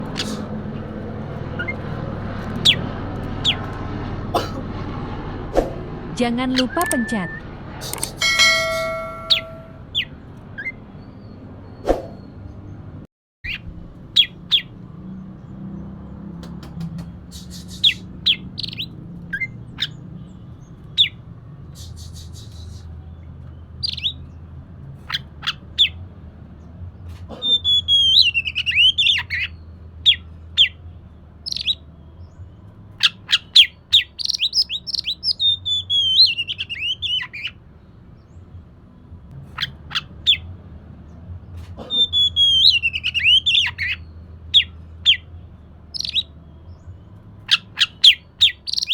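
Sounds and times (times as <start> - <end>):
bird singing: 6.4 - 16.3, 16.9 - 24.5, 27.3 - 40.4, 41.8 - 48.9.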